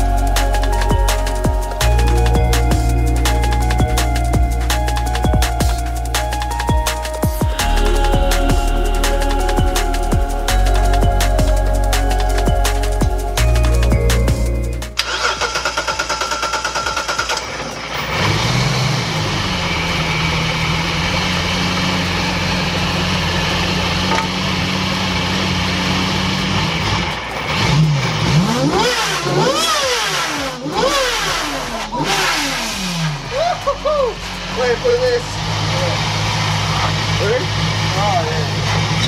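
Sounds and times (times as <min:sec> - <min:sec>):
car engine idling and revving: 0:00.0 - 0:39.0
car starter cranking: 0:14.9 - 0:18.9, 0:27.2 - 0:39.0.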